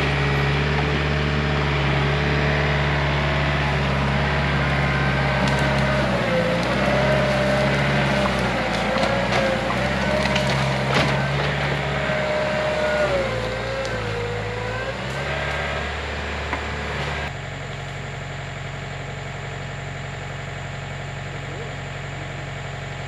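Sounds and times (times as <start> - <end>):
backhoe diesel engine: 0.0 - 23.0
branches cracking and snapping: 3.3 - 15.8.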